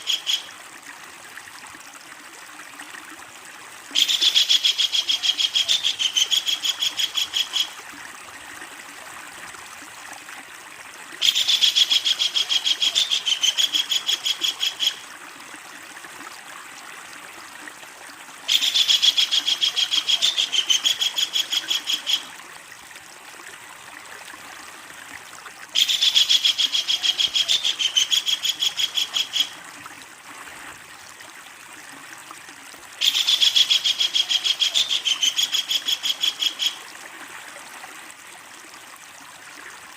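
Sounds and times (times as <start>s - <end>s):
kingfisher rattling call: 0.0s - 0.5s, 4.0s - 7.8s, 11.2s - 15.0s, 18.5s - 22.3s, 25.8s - 29.5s, 33.0s - 36.8s.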